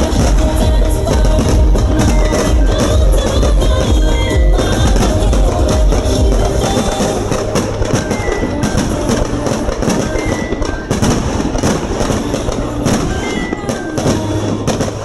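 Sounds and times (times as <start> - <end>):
music with drum hits: 0.0 - 10.3
fireworks bursting: 0.0 - 15.0.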